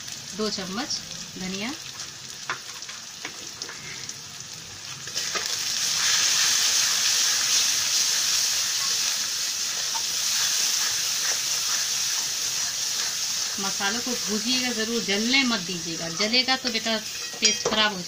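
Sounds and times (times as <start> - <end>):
spices sizzling in hot oil: 0.0 - 18.0
steel spatula stirring: 5.1 - 18.0.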